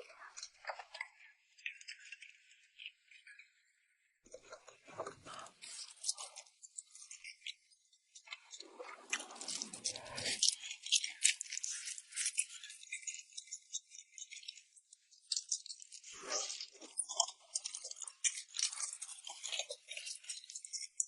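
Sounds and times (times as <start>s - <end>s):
eating noodles: 8.3s - 21.0s.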